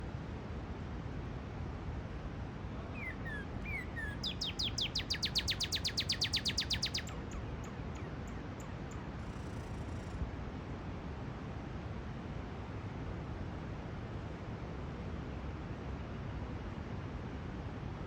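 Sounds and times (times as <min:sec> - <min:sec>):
cardinal singing whistles: 0:03.0 - 0:07.1.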